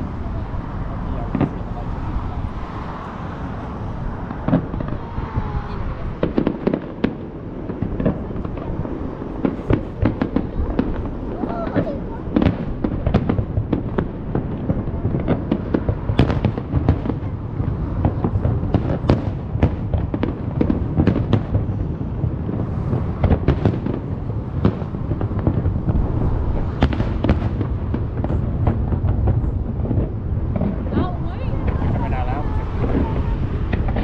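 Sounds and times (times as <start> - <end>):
fireworks bangs and crackles: 0.0 - 34.0
low rumble: 20.0 - 34.0.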